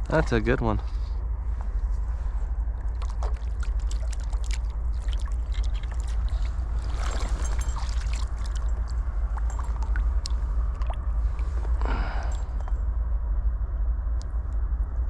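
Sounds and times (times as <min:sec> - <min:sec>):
flowing river water: 0:02.7 - 0:11.8
small splashes and clicks: 0:02.8 - 0:11.0.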